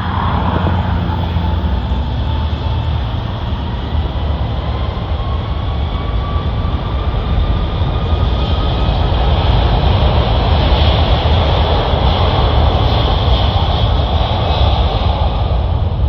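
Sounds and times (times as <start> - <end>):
faint rising whine: 0.0 - 6.6
jet engine rumble: 0.0 - 16.0.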